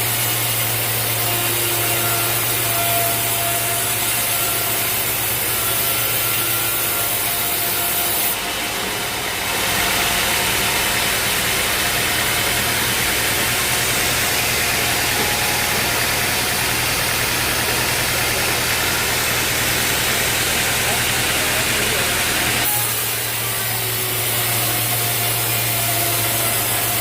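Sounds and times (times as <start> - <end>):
saw blade hissing in wood: 0.0 - 8.4, 18.8 - 27.0
sawmill motor running: 0.0 - 27.0.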